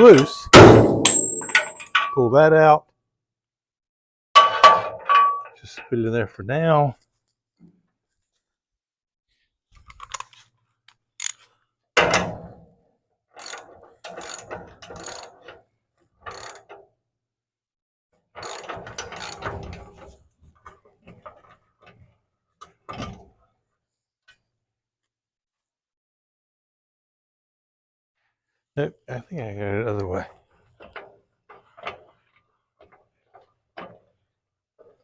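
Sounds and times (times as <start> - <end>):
ratchet wrench clicking: 11.2 - 11.4, 13.4 - 13.6, 14.2 - 15.3, 16.3 - 16.6, 18.4 - 19.4.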